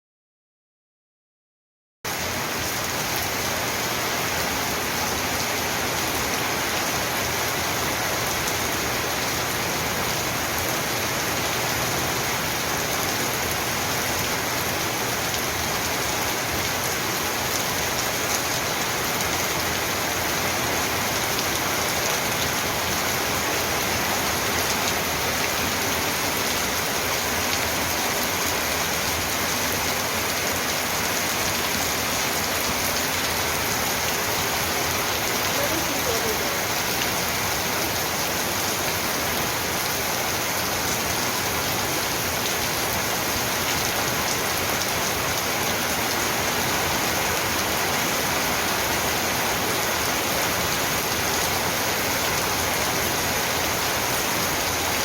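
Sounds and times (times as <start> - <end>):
heavy rain hissing: 2.3 - 55.0.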